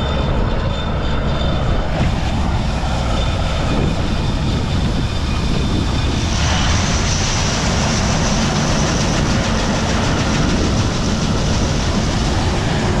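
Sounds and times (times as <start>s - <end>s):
combine harvester running: 0.0s - 13.0s.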